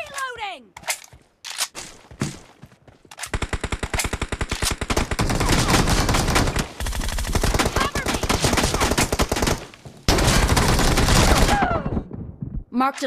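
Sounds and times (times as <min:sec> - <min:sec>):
video game automatic gunfire: 0:03.3 - 0:11.6.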